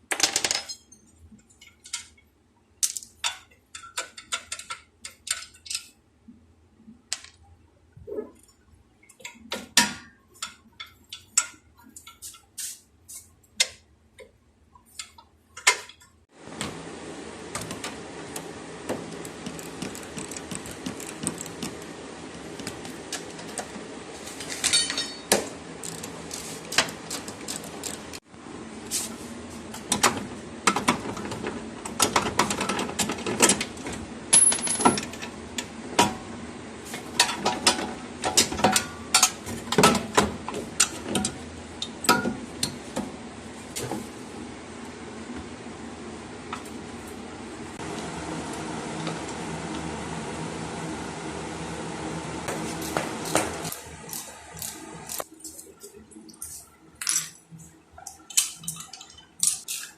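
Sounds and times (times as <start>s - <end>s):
metal tools clinking on car parts: 24.6s - 25.3s.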